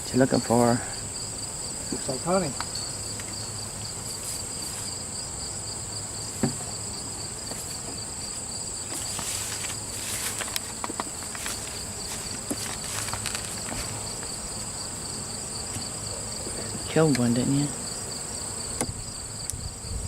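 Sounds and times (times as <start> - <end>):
bees humming in hive: 0.0 - 20.0
insects trilling: 0.0 - 20.0
knock on hive: 6.3 - 6.8, 18.8 - 19.0.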